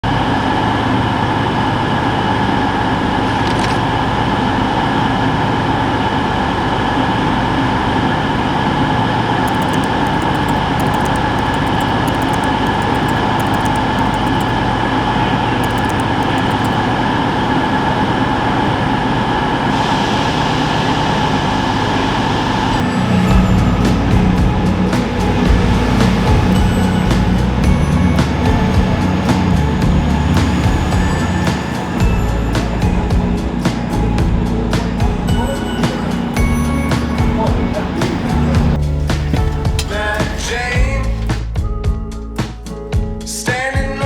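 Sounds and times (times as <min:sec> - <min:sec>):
moving vehicle rumble: 0:22.7 - 0:41.4.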